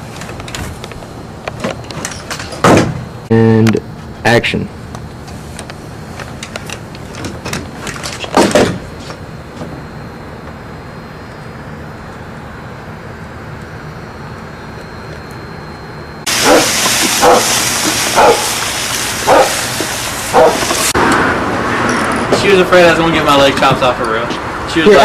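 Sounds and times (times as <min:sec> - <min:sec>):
loud hiss: 0:16.3 - 0:21.0
dog barking: 0:16.4 - 0:17.6, 0:18.2 - 0:18.5, 0:19.2 - 0:19.6, 0:20.3 - 0:20.7.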